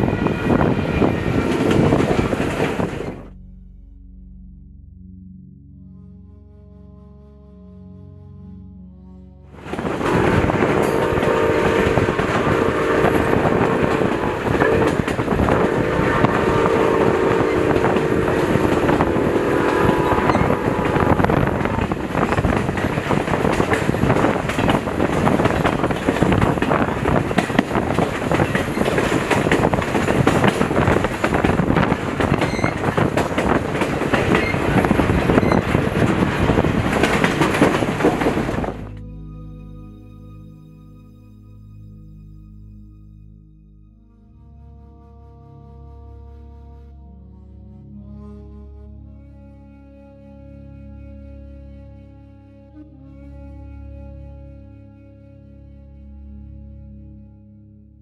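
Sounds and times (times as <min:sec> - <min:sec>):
steam train wheels clattering on rails: 0:00.0 - 0:03.2, 0:09.9 - 0:38.8
steam whistle blasts: 0:09.6 - 0:22.0.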